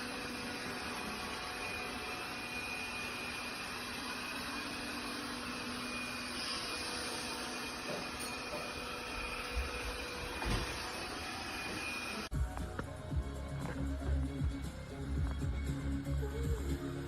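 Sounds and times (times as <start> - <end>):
robot vacuum whirring: 0.0 - 12.3.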